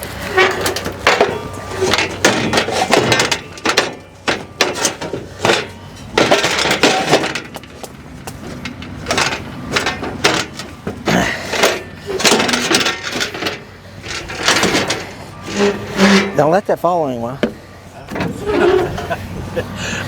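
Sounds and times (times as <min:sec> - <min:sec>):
metallic clanks and scrapes: 0:00.0 - 0:16.7, 0:17.4 - 0:19.3.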